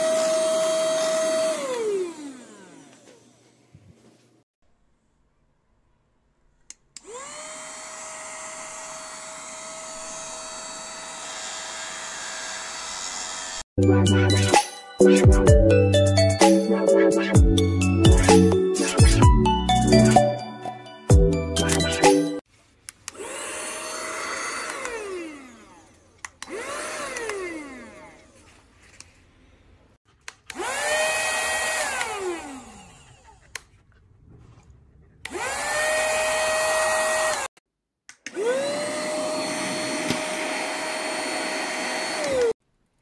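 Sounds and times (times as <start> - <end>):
handheld vacuum motor whine: 0.0 - 3.6, 7.0 - 13.7, 23.1 - 28.6, 30.5 - 33.6, 35.2 - 37.6, 38.3 - 42.6
background music: 13.8 - 22.4.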